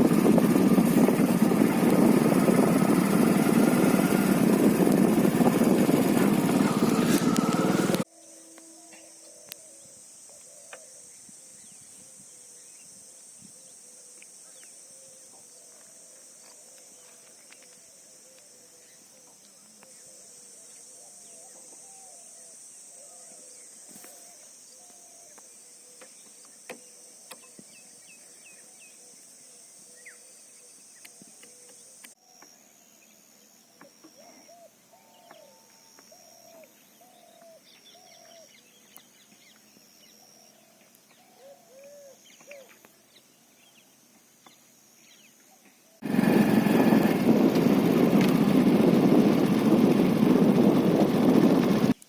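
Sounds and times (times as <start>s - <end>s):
birds calling: 0.0s - 8.0s
high-pitched drone: 0.0s - 8.0s, 46.0s - 52.0s.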